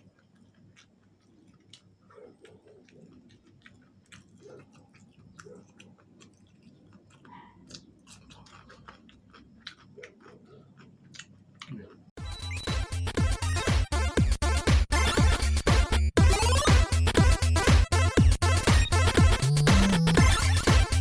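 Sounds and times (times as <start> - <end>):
chewing crunchy fried chicken: 0.0 - 12.2.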